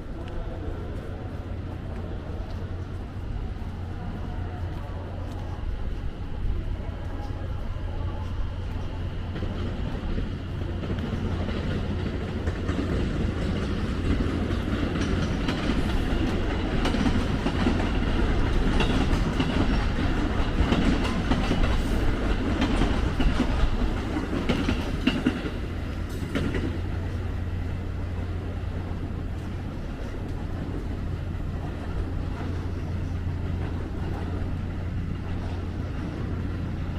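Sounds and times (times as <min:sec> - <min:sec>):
train rumbling with wheel clatter: 0:00.0 - 0:36.9.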